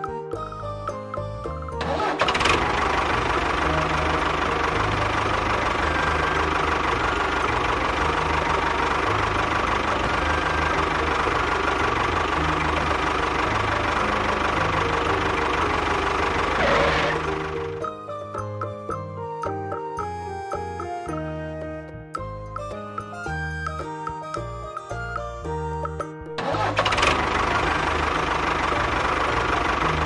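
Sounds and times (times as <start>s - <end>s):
small engine running: 1.8s - 18.0s, 26.4s - 30.0s.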